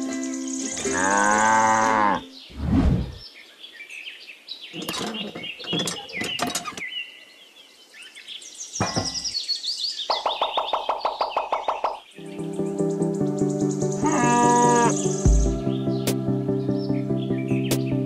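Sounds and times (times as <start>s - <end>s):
birds chirping: 0.0s - 18.0s
low whoosh: 2.5s - 3.2s.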